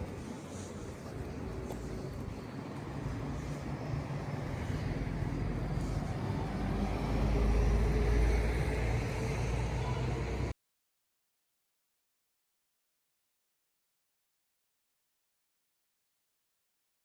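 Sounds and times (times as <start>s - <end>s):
low road vehicle rumble: 0.0s - 10.5s
street noise: 0.0s - 10.6s.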